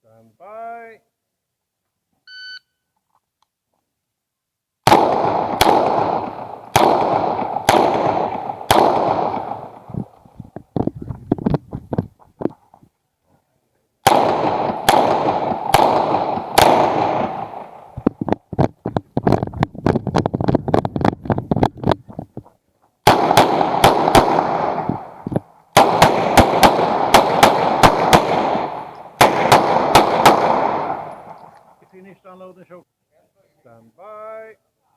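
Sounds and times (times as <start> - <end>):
pistol shots: 4.8 - 10.0, 14.0 - 18.0, 23.0 - 31.8
gunshots with echo: 4.8 - 10.1, 14.0 - 18.0, 23.0 - 25.2, 25.8 - 31.6.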